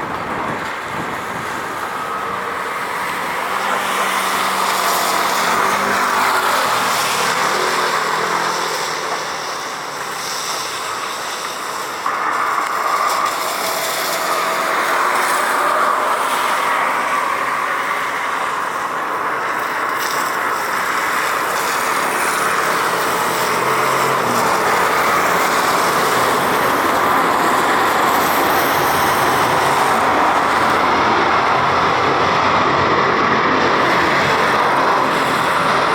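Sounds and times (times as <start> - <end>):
jet engine rushing: 21.8 - 35.9.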